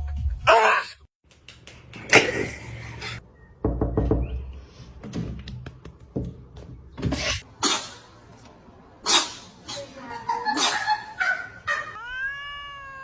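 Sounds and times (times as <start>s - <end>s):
knocks and taps: 3.6s - 7.2s.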